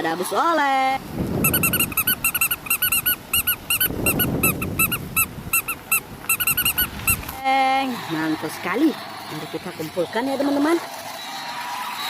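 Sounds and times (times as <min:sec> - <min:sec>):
low rustling: 0:01.0 - 0:07.4
high squeaky chirps: 0:01.3 - 0:07.4.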